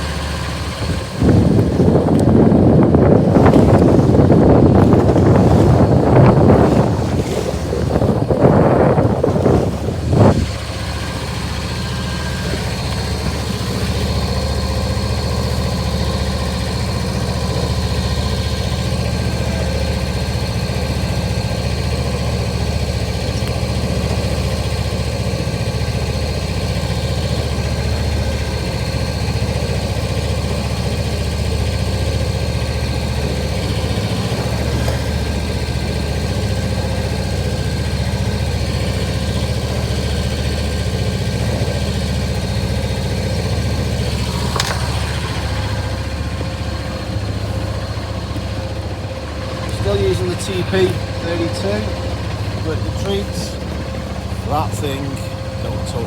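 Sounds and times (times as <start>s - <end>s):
boat engine running: 0.0s - 56.0s
wind on microphone: 0.6s - 14.3s.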